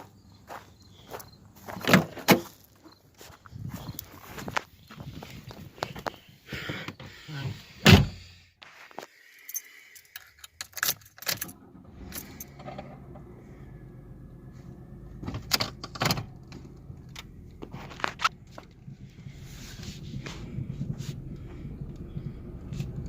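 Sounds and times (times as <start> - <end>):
metallic jangling: 9.4 - 12.6.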